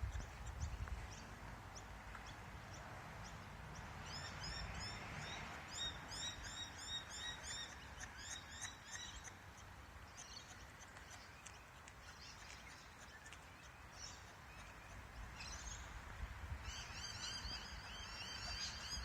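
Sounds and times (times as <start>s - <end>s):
small bird chirping: 0.0s - 16.0s
faint outdoor background noise: 0.0s - 19.0s.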